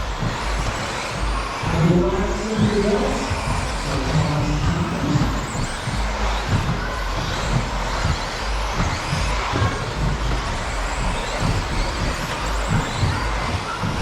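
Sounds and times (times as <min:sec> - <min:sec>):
low thumps: 0:00.0 - 0:14.0
rc car motor whine: 0:00.0 - 0:14.0
tyre noise: 0:00.0 - 0:14.0.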